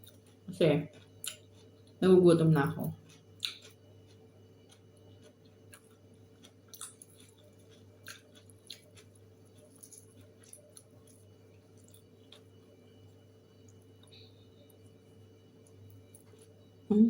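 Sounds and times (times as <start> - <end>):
eating clicks and crunches: 0.0 - 2.0, 2.7 - 13.0
low steady hum: 0.0 - 17.0.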